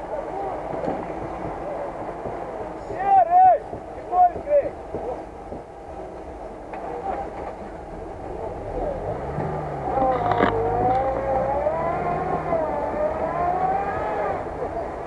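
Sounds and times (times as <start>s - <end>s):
engine revving under load: 7.8s - 15.0s.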